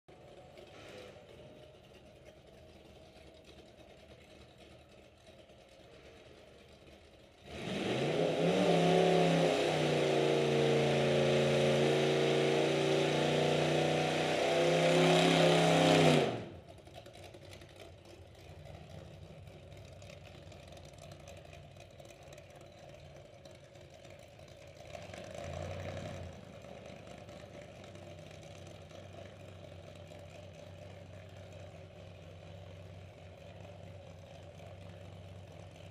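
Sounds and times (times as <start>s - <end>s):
quieter engine running: 0.1s - 35.9s
drag car engine revving loud: 7.4s - 16.8s, 24.8s - 28.0s.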